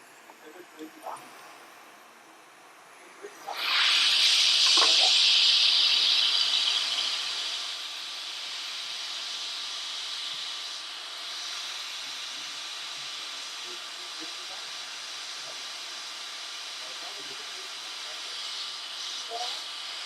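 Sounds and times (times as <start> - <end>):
hot air blower hissing: 0.0 - 20.0.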